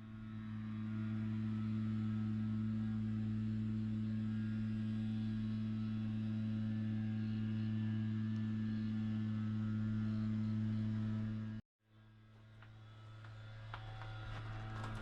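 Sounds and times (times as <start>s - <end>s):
low humming drone: 0.0s - 15.0s.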